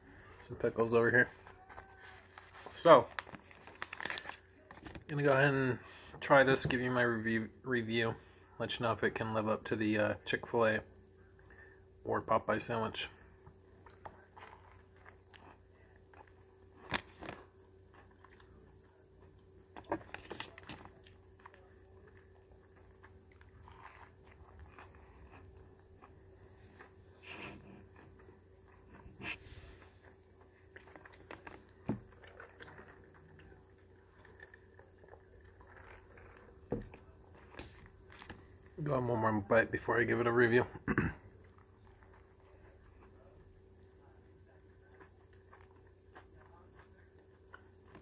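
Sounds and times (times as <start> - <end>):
person chewing crunchy food: 13.7 - 38.7, 41.3 - 48.0.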